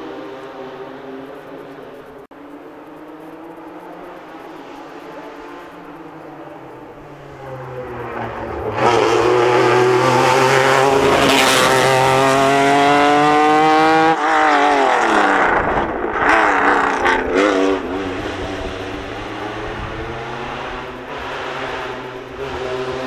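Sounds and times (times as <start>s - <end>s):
rally car accelerating past: 3.3s - 23.0s.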